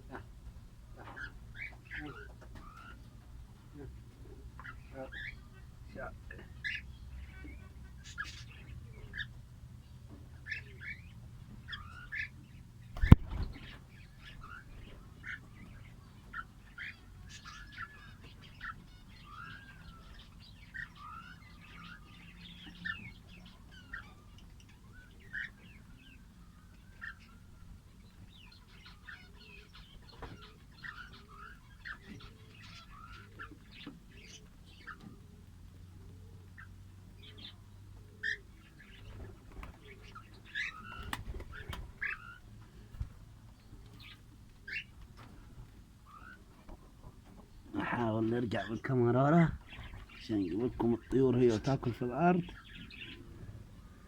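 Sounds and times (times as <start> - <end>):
parrots chirping and squeaking: 1.0 - 3.2, 28.3 - 35.2, 39.8 - 42.5, 43.9 - 44.9, 46.0 - 46.5.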